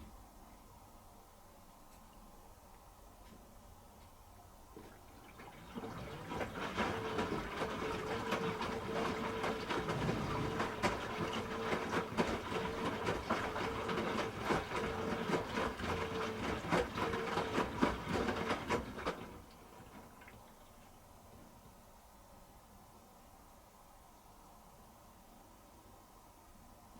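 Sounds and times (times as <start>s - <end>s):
washing machine running: 4.9s - 20.3s.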